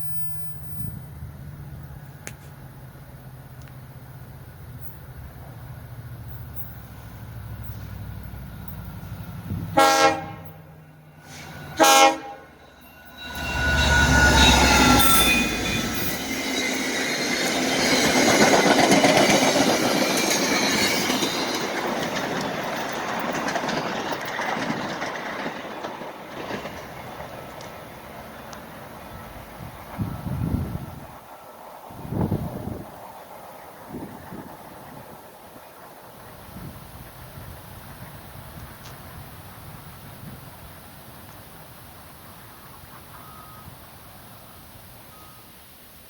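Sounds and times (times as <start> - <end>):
train wheels clattering on rails: 0.0 - 45.4
train horn blasts: 9.5 - 16.2.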